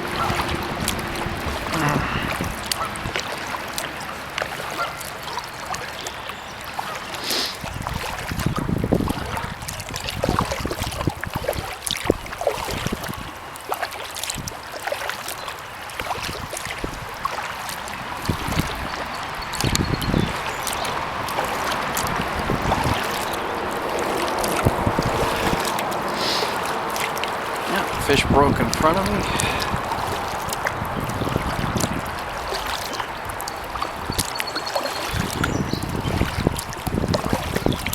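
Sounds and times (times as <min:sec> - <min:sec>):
dripping water: 0:00.0 - 0:37.9
paddle strokes in water: 0:00.0 - 0:37.9.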